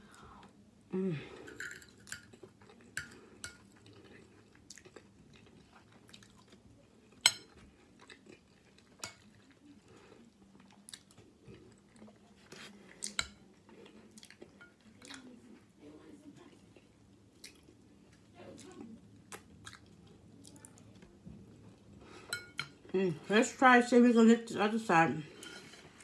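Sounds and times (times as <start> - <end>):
person chewing food: 1.4 - 15.6, 16.5 - 22.9.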